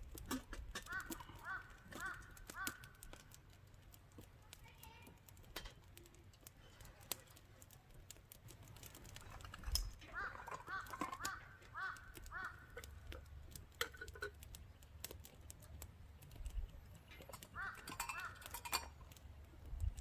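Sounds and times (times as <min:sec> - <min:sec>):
campfire wood crackling: 0:00.0 - 0:20.0
bird calls: 0:00.8 - 0:03.3, 0:10.0 - 0:13.0, 0:16.1 - 0:18.8.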